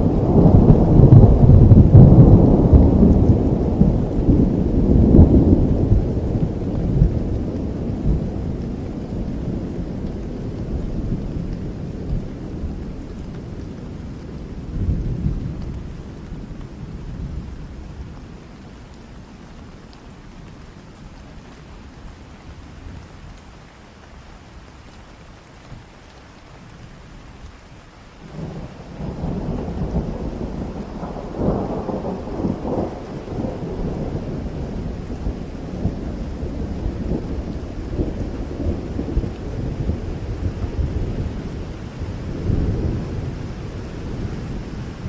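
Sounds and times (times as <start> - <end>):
rolling thunder: 0.0 - 18.2, 28.2 - 45.0
steady rain: 0.0 - 45.0.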